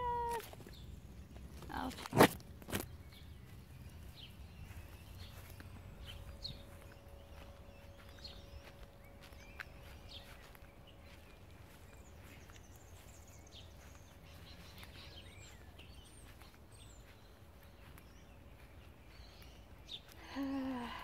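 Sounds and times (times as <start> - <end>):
low background rumble: 0.0 - 21.0
faint steady hum: 3.0 - 21.0.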